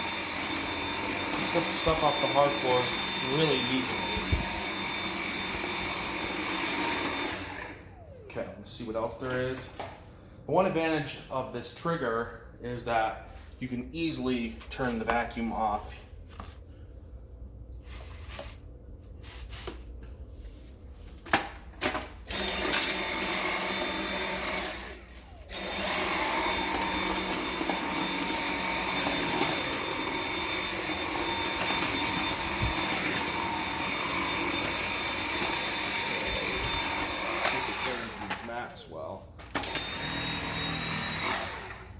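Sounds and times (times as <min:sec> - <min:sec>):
vacuum motor high whine: 0:00.0 - 0:09.9, 0:22.3 - 0:38.5, 0:39.5 - 0:41.9.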